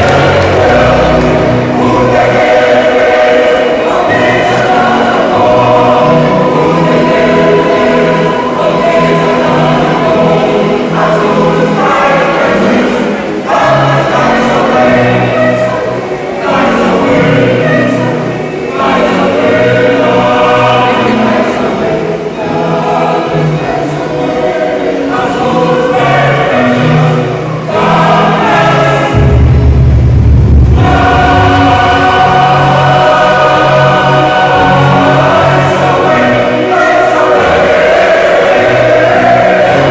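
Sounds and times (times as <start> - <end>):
choir singing: 0.0 - 39.9
deep low tone: 29.2 - 31.1.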